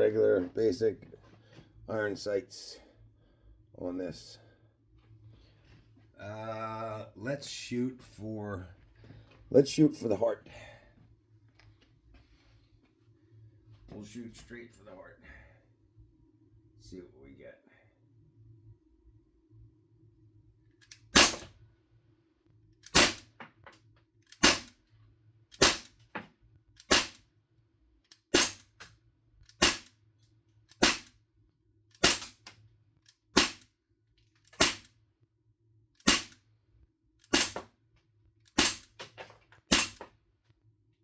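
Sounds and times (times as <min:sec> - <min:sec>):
bb gun pops: 0:21.2 - 0:21.5, 0:22.9 - 0:23.4, 0:24.3 - 0:24.8, 0:25.6 - 0:26.0, 0:26.8 - 0:27.2, 0:28.3 - 0:28.7, 0:29.6 - 0:29.9, 0:30.8 - 0:31.1, 0:32.0 - 0:32.5, 0:33.4 - 0:33.7, 0:34.5 - 0:34.9, 0:36.0 - 0:36.4, 0:37.3 - 0:37.7, 0:38.6 - 0:39.0, 0:39.7 - 0:40.1.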